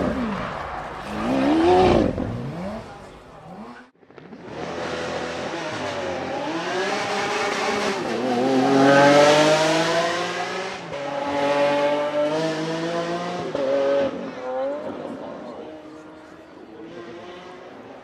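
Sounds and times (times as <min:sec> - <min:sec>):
car engine accelerating hard: 0:04.6 - 0:18.0.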